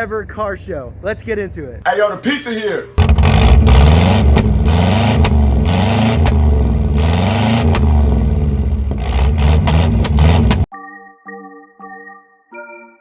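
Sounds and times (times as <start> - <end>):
car engine revving: 3.0 - 10.7
sharp clicks: 9.0 - 10.7.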